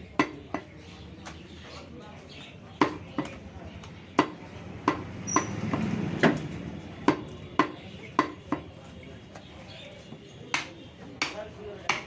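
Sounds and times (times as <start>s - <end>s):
cleaver chopping meat on block: 0.2s - 0.7s, 2.8s - 3.4s, 4.1s - 6.4s, 7.1s - 8.7s, 10.5s - 12.0s.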